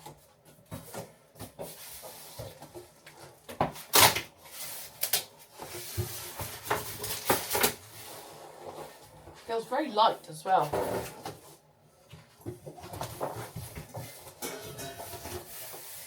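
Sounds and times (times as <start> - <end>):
packaging scraping and rustling: 0.7 - 9.4, 12.4 - 16.0.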